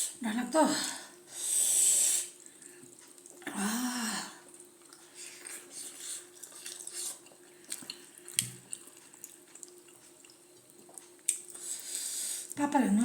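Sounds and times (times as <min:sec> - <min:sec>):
wet chewing and slurping: 0:01.8 - 0:03.4, 0:04.4 - 0:12.6.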